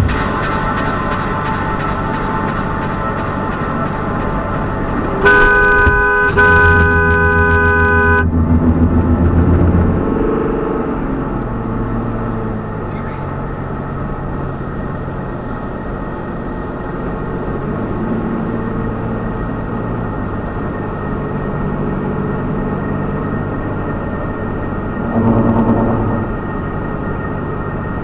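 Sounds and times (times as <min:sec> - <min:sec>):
engine and road drone: 0:00.0 - 0:28.0
loud pitched sound: 0:04.7 - 0:08.3, 0:24.7 - 0:28.0.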